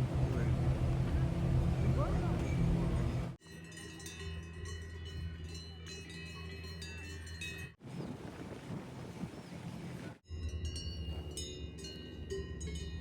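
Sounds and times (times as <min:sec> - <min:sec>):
low background hum: 0:00.0 - 0:03.4
cowbells clanking: 0:03.4 - 0:07.8, 0:10.3 - 0:13.0.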